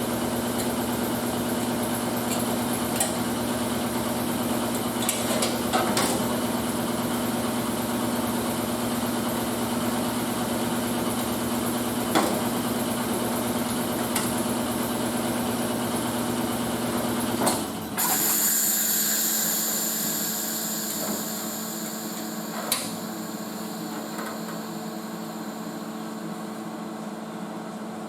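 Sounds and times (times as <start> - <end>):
high machine whine: 17.9 - 27.2
power tool running with low hum: 18.0 - 26.8.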